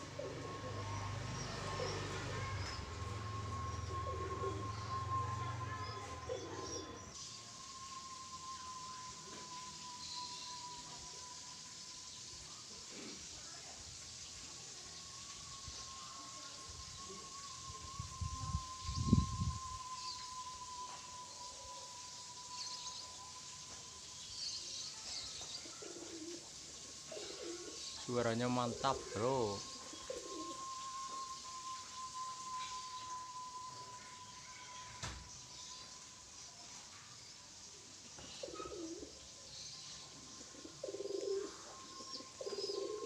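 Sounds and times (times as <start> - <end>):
pigeons cooing: 0.0 - 7.2, 24.9 - 31.4, 38.2 - 43.0
faint high chirps: 0.0 - 43.0
pigeon whistle tone: 0.1 - 11.6, 15.9 - 24.1, 27.2 - 36.1, 40.6 - 43.0.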